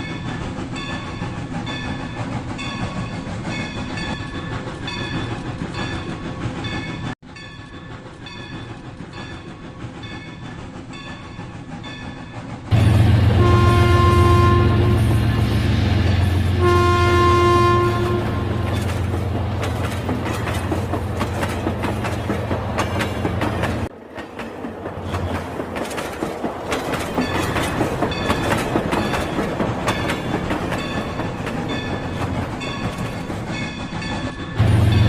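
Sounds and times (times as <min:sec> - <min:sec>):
rapid clicking of wheels on track: 0:17.8 - 0:35.0.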